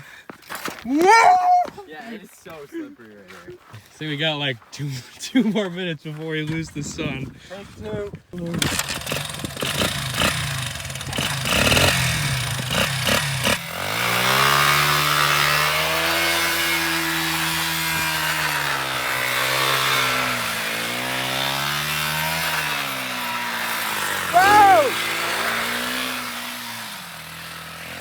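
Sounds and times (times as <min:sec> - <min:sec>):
pit bike engine revving: 0:08.4 - 0:28.0.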